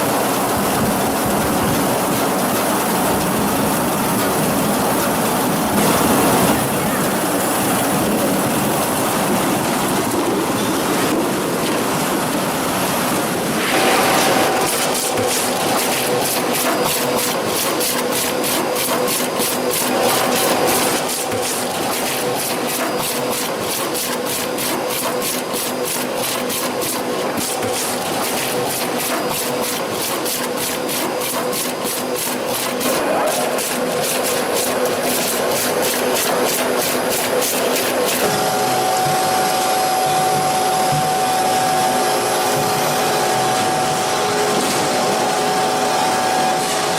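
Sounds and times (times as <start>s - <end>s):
factory machinery running: 0.0s - 46.9s
machinery hum: 32.9s - 46.9s.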